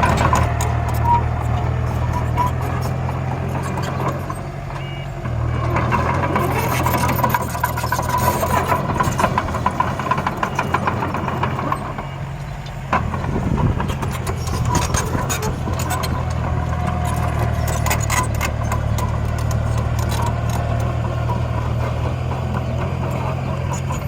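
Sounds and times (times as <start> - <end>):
diesel engine running: 0.0 - 24.0
rapid metal clanking and rattling: 5.7 - 12.1, 12.8 - 24.0.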